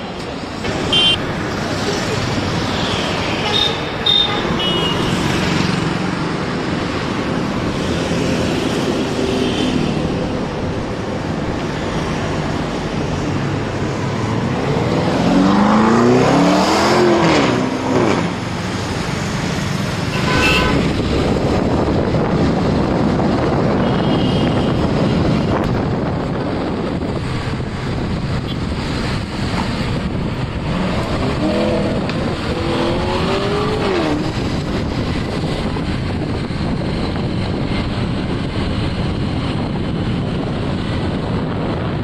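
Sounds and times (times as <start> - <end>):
road traffic noise: 0.0 - 42.0
car engine revving hard: 14.8 - 18.3, 30.7 - 34.3.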